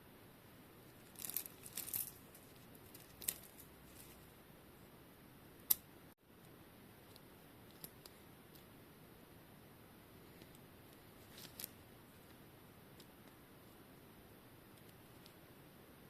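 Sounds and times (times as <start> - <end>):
scratchy rustling of bicycle chain: 1.1 - 4.2.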